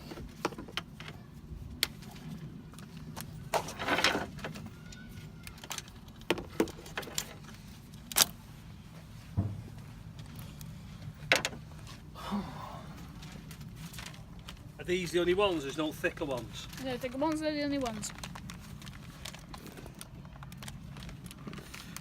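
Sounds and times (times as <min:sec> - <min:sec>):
steady low hum: 0:06.7 - 0:22.0
dull thud: 0:09.3 - 0:09.8.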